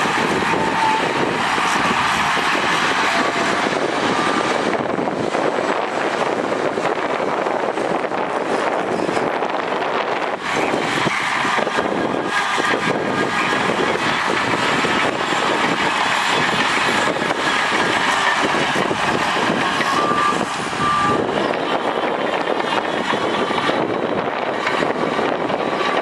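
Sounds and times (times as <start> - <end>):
diesel engines under load: 0.0 - 26.0
short beeps: 19.9 - 21.2.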